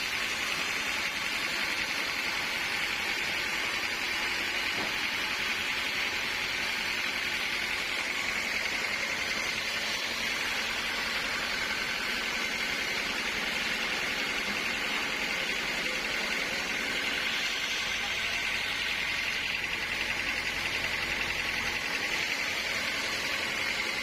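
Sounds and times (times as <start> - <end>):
sawmill saw whining: 0.0 - 24.0.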